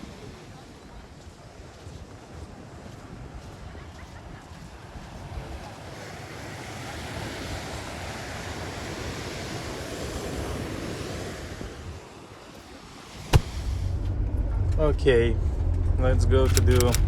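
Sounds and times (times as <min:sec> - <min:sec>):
ocean wave breaking and washing in: 0:04.4 - 0:14.0.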